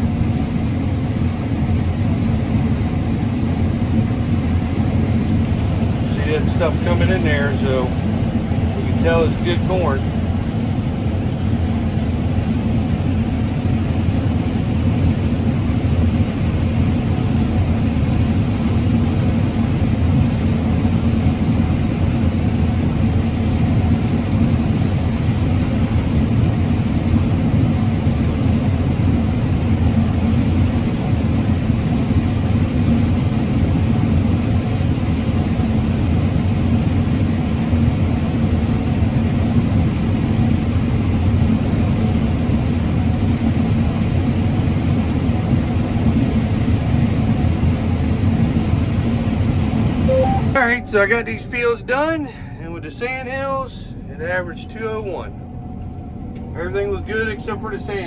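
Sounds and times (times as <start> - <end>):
combine harvester running: 0.0 - 11.3, 50.1 - 55.5.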